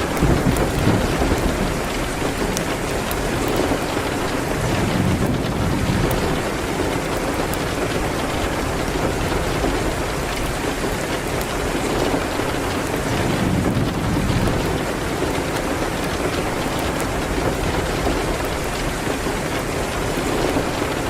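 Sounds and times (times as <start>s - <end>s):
heavy rain: 0.0s - 21.0s.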